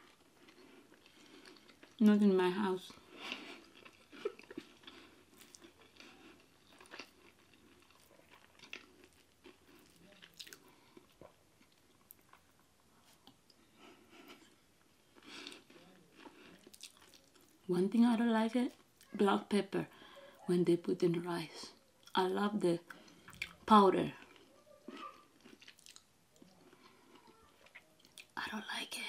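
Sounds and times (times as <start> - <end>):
chewing and mouth smacks: 0.0 - 2.0, 3.1 - 17.6, 22.9 - 23.6, 24.2 - 28.4.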